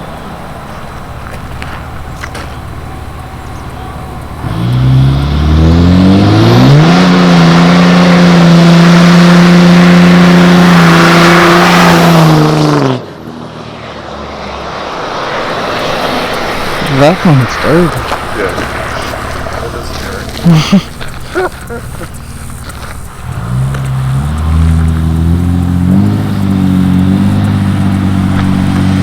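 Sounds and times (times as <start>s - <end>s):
diesel truck engine revving: 0.0s - 29.0s
tires spinning in a burnout: 0.0s - 29.0s.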